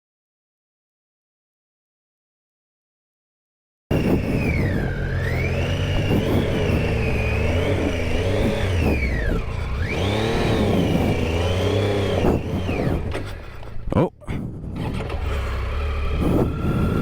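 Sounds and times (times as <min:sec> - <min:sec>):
motorcycle engine revving: 0:03.9 - 0:17.0.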